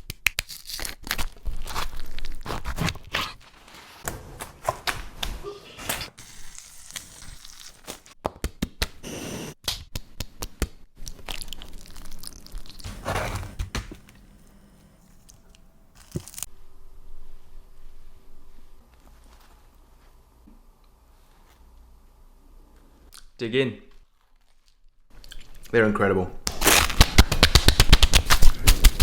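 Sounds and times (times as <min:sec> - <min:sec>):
crusty bread crunching: 0:00.2 - 0:04.0
tearing and crinkling: 0:00.3 - 0:04.0, 0:06.0 - 0:08.2, 0:11.1 - 0:14.0, 0:15.3 - 0:16.5, 0:23.9 - 0:25.0, 0:26.5 - 0:29.0.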